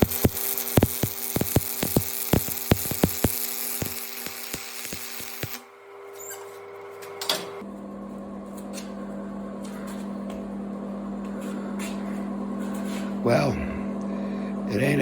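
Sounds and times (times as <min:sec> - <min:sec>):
welding arc crackling: 0:00.0 - 0:05.7.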